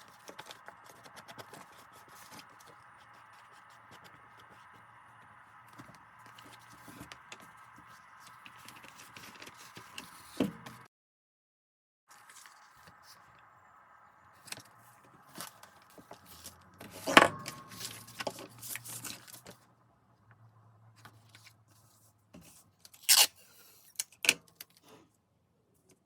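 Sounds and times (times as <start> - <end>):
paper rustling and crinkling: 0.0 - 10.9, 12.1 - 13.5, 14.4 - 19.6.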